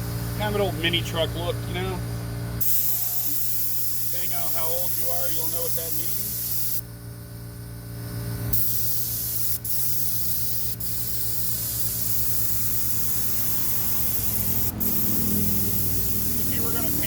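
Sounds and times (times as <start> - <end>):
paint spray gun hissing: 2.6 - 6.9, 8.5 - 17.0.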